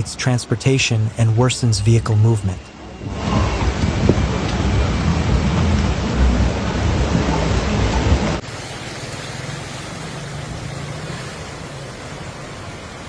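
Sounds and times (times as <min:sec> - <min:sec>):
wind: 0:00.0 - 0:13.0
rain: 0:03.0 - 0:13.0
steady hiss: 0:08.4 - 0:13.0.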